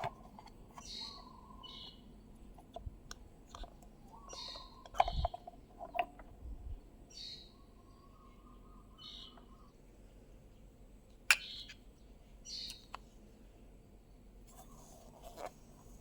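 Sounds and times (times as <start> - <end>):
bird chirping: 0.7 - 2.8, 3.5 - 10.7, 11.3 - 13.0.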